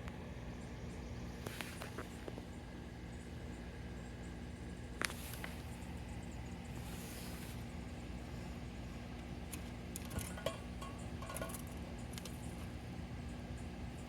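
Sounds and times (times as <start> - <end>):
low rumble and hiss: 0.0 - 14.0
light metallic clinks: 9.5 - 12.7.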